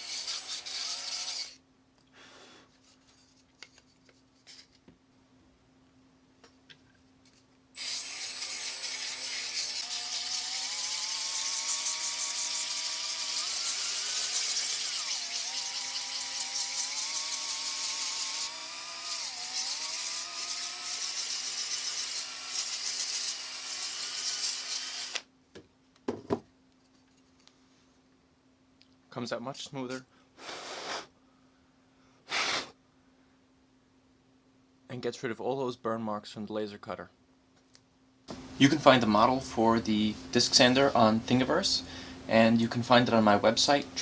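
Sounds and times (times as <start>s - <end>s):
electric drill motor whining: 0.0s - 1.6s, 7.8s - 25.3s.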